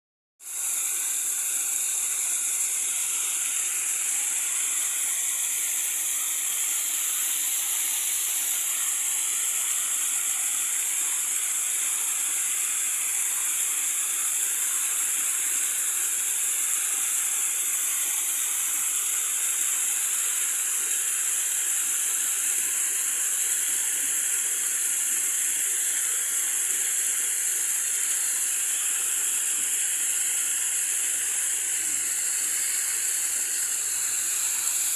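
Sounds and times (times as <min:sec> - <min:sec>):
running water hiss: 0:00.4 - 0:34.9.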